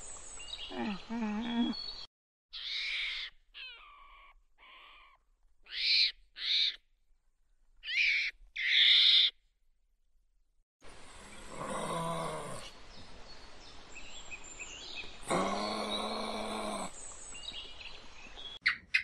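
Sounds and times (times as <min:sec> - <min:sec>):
shrill animal calls: 0:02.5 - 0:06.8, 0:07.8 - 0:09.4, 0:18.6 - 0:19.0.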